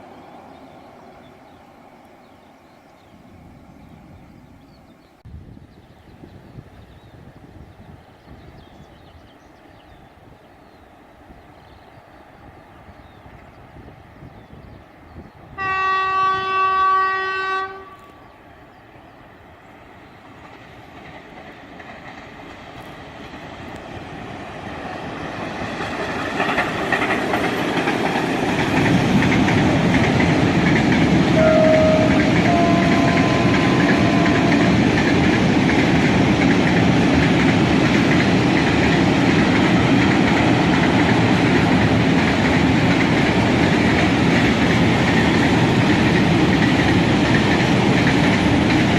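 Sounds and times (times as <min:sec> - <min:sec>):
locomotive horn blast: 0:15.6 - 0:18.2, 0:31.4 - 0:34.8
train wagons rumbling and clattering: 0:19.7 - 0:48.9.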